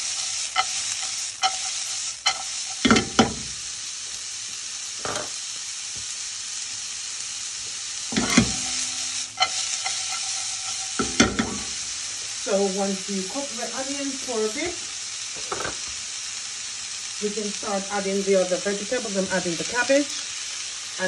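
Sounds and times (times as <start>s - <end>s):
utensil stirring in a pan: 0.0s - 4.3s, 7.7s - 12.6s
onions sizzling in hot oil: 0.0s - 21.0s.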